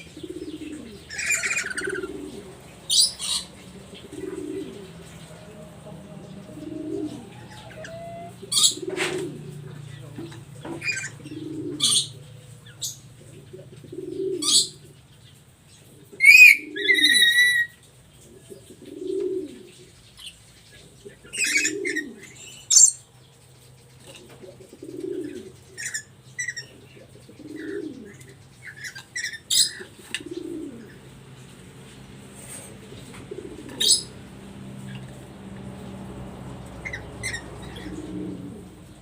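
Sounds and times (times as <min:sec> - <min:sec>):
low coo: 0:00.0 - 0:15.0, 0:16.0 - 0:19.8, 0:21.1 - 0:22.9, 0:24.1 - 0:31.1, 0:32.5 - 0:35.6, 0:36.4 - 0:39.0
parrot squawks and whistles: 0:07.6 - 0:08.8.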